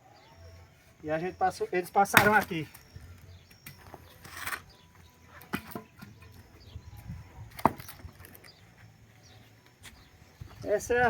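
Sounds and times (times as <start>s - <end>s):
dry wood knocking and snapping: 2.2s - 2.5s, 7.5s - 8.5s.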